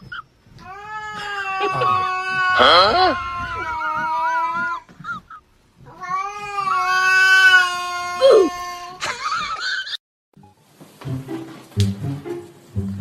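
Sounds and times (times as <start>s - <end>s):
cat yowling: 0.6s - 4.9s, 5.8s - 9.0s.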